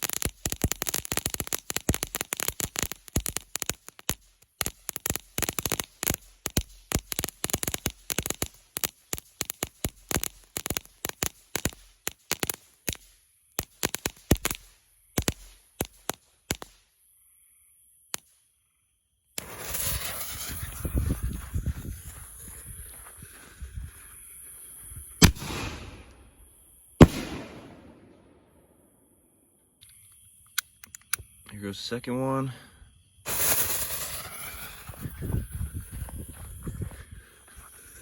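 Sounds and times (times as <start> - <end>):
firework crackling pops: 0.0 - 16.9, 18.1 - 18.4, 19.4 - 22.8, 25.1 - 28.6, 33.3 - 36.8.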